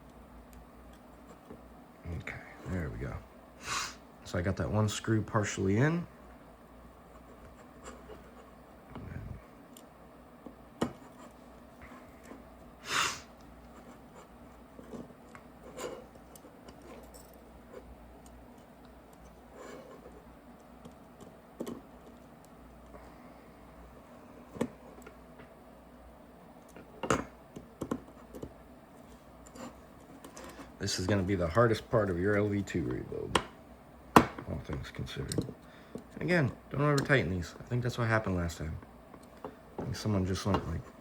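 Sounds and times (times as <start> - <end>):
light clicks and taps of parts: 34.2 - 36.2.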